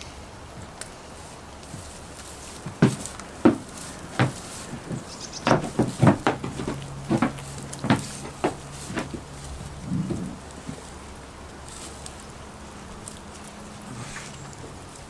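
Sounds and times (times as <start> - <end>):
steady low hum: 0.0 - 15.0
sharp knocks and taps: 2.7 - 9.3.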